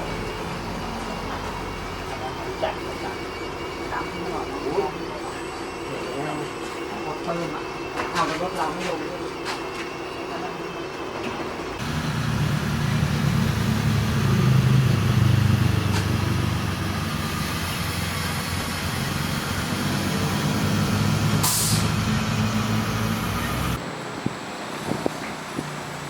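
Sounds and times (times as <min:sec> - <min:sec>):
simulated diesel truck engine revving: 0:11.8 - 0:23.8
air brake hiss: 0:21.4 - 0:22.0.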